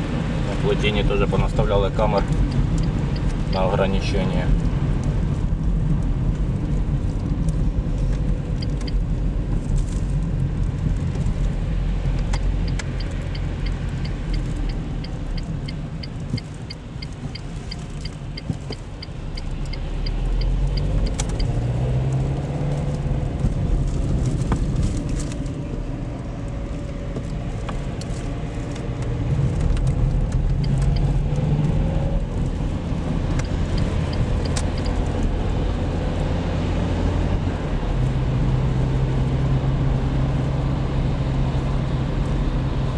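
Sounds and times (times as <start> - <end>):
car engine and road rumble: 0.0 - 42.9
light even ticking: 12.1 - 21.9, 29.7 - 31.4, 32.2 - 35.3.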